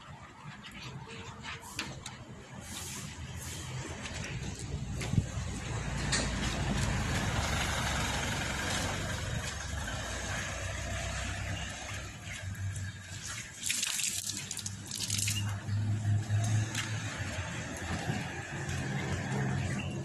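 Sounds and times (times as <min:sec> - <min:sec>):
water spraying: 0:09.9 - 0:17.9
water splashing: 0:10.4 - 0:17.9.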